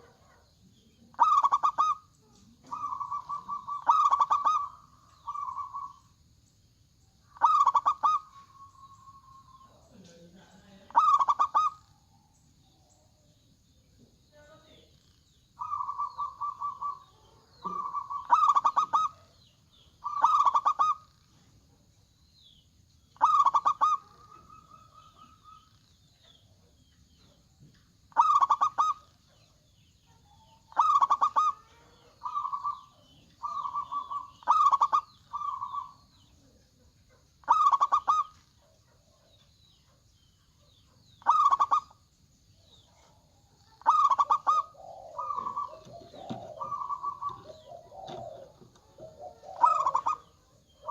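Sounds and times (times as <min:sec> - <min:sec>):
dove cooing: 0:00.0 - 0:06.2, 0:07.2 - 0:13.1, 0:15.6 - 0:21.8, 0:23.2 - 0:27.4, 0:28.1 - 0:39.4, 0:40.6 - 0:42.0, 0:42.8 - 0:50.9.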